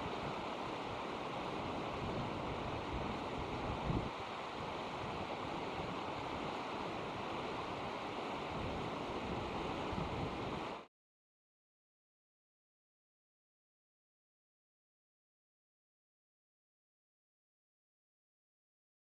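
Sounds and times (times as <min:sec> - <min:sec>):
flowing river water: 0:00.0 - 0:10.9
wind on microphone: 0:01.6 - 0:07.2, 0:08.4 - 0:10.8.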